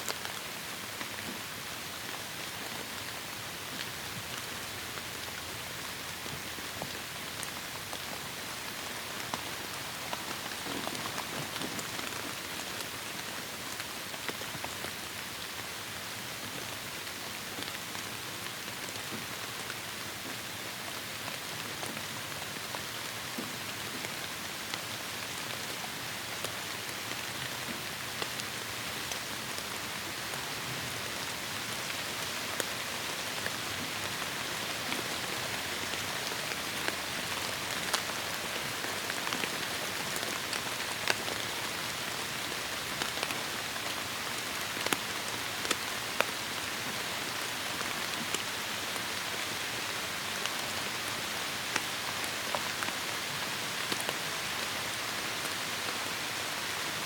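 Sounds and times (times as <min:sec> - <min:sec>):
heavy rain on foliage: 0:00.0 - 0:57.0.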